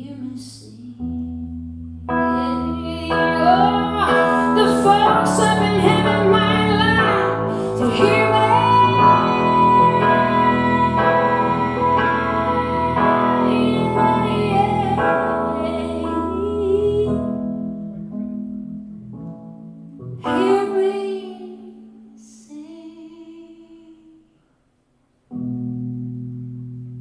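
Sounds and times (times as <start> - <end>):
woman singing wordlessly: 0.0 - 1.3, 2.2 - 17.4, 20.2 - 24.2
sustained instrumental chords: 1.1 - 22.2.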